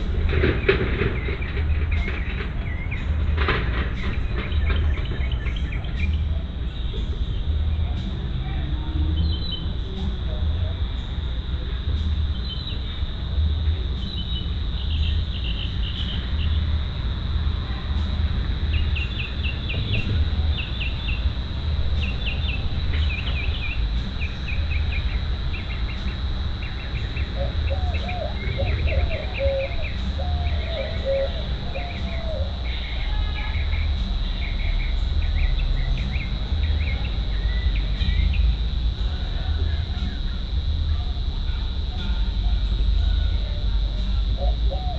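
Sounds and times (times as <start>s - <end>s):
birds chirping: 0.0s - 17.3s, 18.0s - 38.9s, 44.2s - 44.9s
low bird song: 0.0s - 39.0s, 44.0s - 44.9s
crickets trilling: 0.0s - 44.9s
low rumble: 14.6s - 30.8s.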